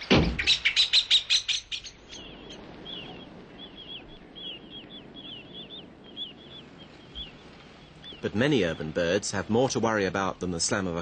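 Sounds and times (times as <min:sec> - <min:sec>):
small birds chirping: 0:00.0 - 0:11.0
blackbird alarm chatter: 0:00.4 - 0:08.9.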